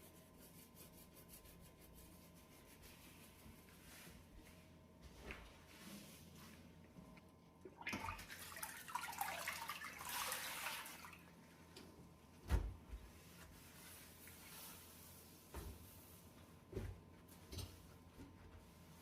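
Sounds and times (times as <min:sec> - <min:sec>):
water splashing and trickling: 0:07.7 - 0:11.3.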